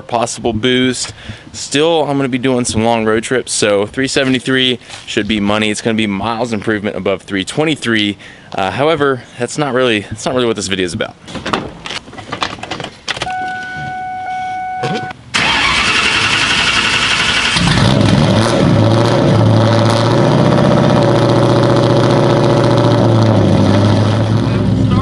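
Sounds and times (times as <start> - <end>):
car engine cranking on starter: 15.3 - 18.1.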